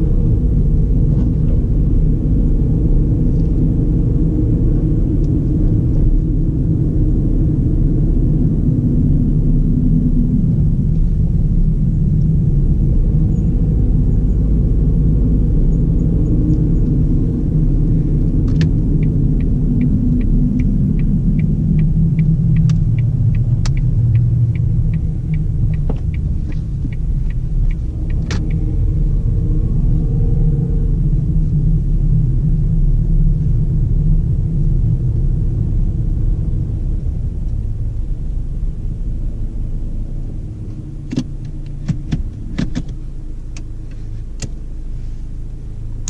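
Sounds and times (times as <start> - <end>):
car engine rumble: 0.0 - 46.0
road noise inside car: 0.0 - 46.0
even ticking: 19.0 - 28.6.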